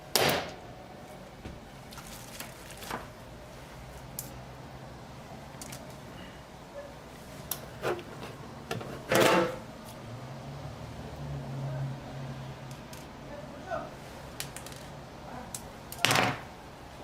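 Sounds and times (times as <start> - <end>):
objects clattering: 7.6 - 9.6.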